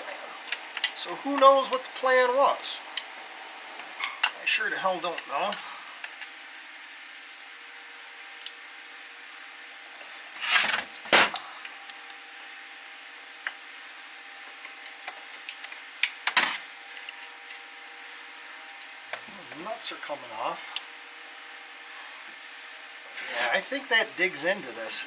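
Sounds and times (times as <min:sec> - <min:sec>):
hand tools clicking and scraping: 0:00.0 - 0:03.2, 0:03.8 - 0:06.3, 0:10.0 - 0:12.2, 0:23.1 - 0:25.0
faint hum: 0:00.0 - 0:25.0.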